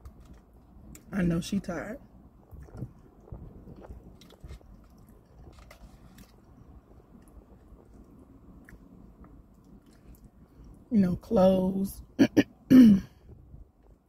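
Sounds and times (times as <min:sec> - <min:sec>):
close chewing: 0:02.5 - 0:10.8.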